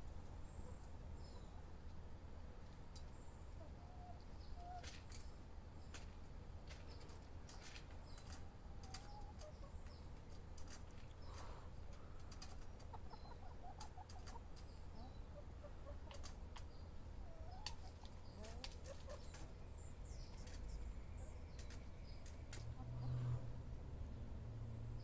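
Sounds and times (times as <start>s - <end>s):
small birds chirping: 0.0s - 25.0s
chickens clucking: 0.2s - 24.2s
sharp clicks: 21.5s - 22.7s.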